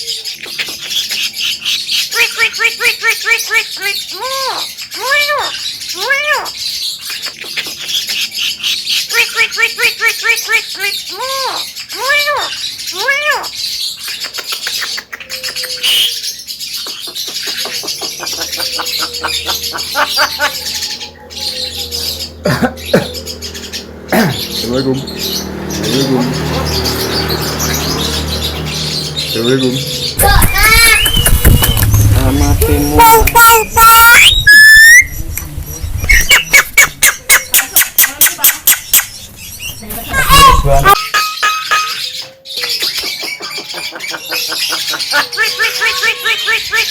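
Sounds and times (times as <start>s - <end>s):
myna bird singing: 0.0s - 46.9s
sharp clicking notes: 27.6s - 33.4s.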